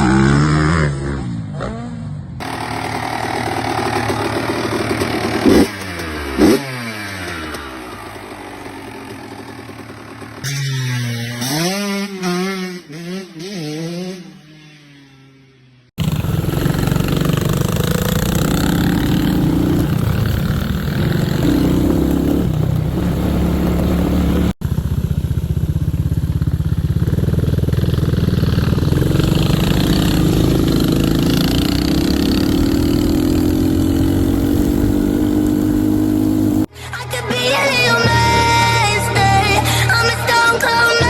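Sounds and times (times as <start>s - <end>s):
dirt bike engine running: 0.0s - 15.1s, 16.0s - 36.7s
music: 36.7s - 41.0s.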